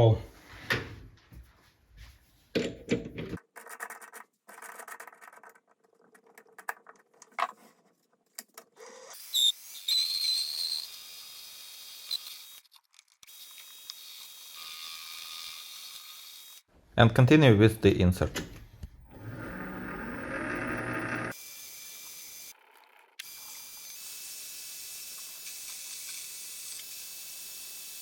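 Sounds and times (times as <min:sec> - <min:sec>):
power tool drilling whine: 0:08.8 - 0:12.6, 0:19.1 - 0:22.6.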